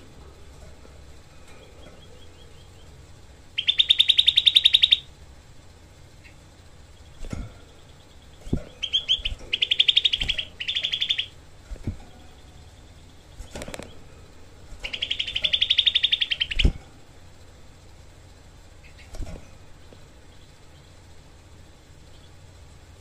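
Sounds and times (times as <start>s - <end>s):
bird harsh rattling calls: 1.3s - 5.1s, 6.2s - 16.8s, 18.8s - 19.4s.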